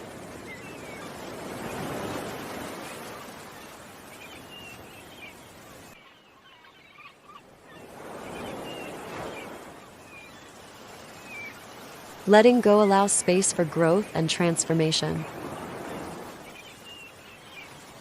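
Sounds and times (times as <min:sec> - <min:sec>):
ocean waves on shore: 0:00.0 - 0:18.0
small birds chirping: 0:03.0 - 0:12.1, 0:15.0 - 0:18.0.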